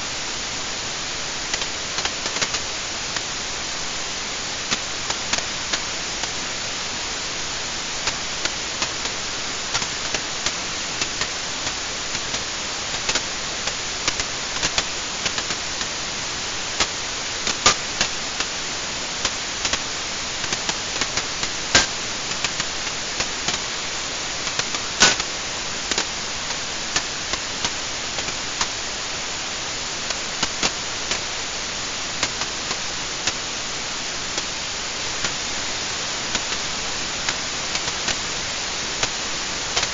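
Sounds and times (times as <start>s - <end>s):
wood fire crackling and popping: 19.2s - 23.8s.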